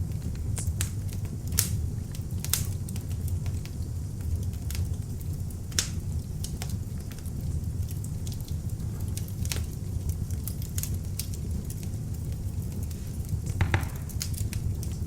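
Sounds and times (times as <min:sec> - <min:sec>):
fire crackling in a fireplace: 0:00.0 - 0:15.0.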